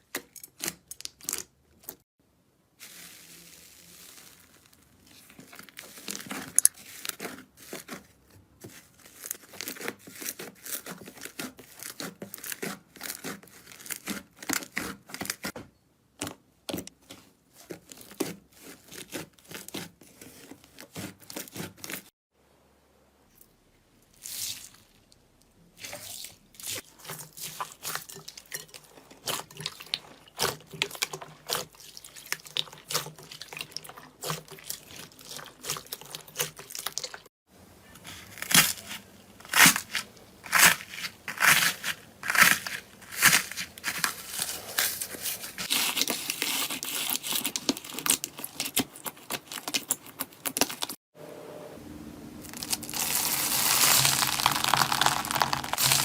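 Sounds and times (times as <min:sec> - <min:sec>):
slime crackling and popping: 0:52.5 - 0:56.0.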